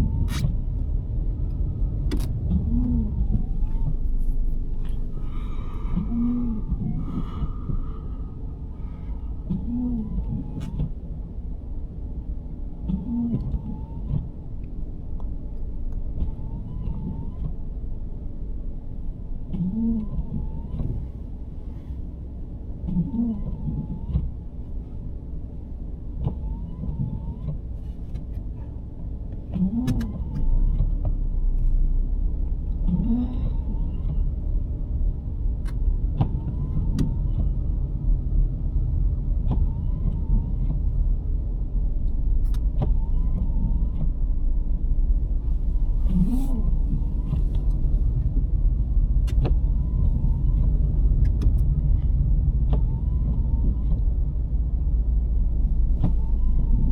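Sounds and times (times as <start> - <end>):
wiper motor whine: 0.0 - 14.6, 32.8 - 56.9
road rumble: 0.0 - 56.9.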